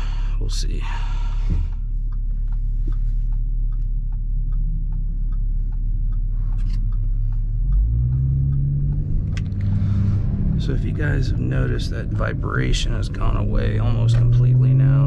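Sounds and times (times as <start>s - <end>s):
exhaust drone inside car: 0.0s - 15.0s.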